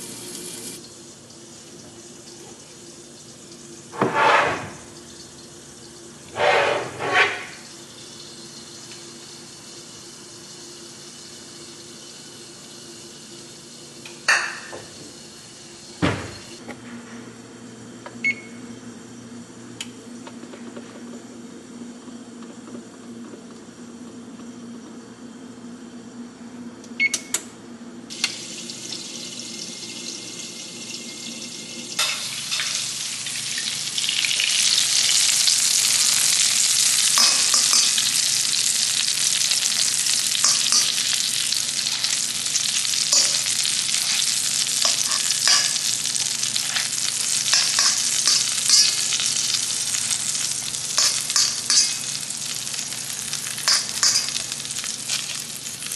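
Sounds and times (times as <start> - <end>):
food sizzling in a hot pan: 6.4 - 16.6, 28.1 - 55.9.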